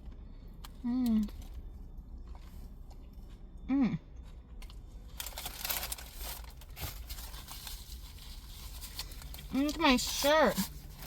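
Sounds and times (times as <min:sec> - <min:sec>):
woman humming: 0:03.7 - 0:04.0
food packaging crinkling: 0:04.6 - 0:11.0.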